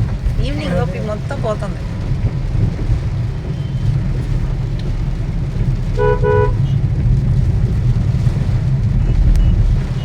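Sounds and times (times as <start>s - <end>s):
heavy rain rumble: 0.0s - 10.0s
vehicle horn toots: 6.0s - 6.8s.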